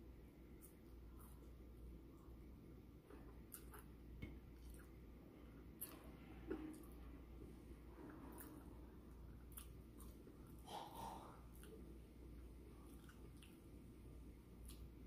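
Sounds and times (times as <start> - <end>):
chewing with mouth closed: 5.8 - 7.0, 8.1 - 11.9, 12.8 - 13.7.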